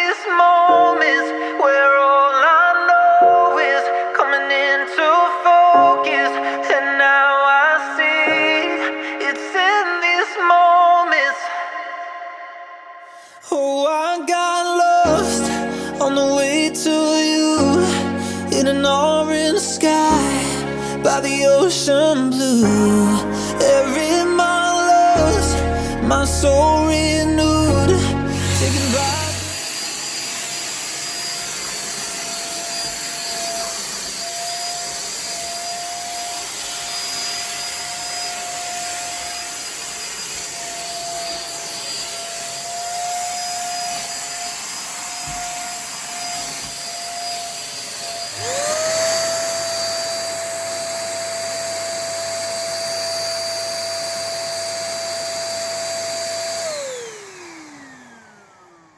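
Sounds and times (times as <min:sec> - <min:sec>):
vacuum cleaner motor whine: 0:26.2 - 0:58.9.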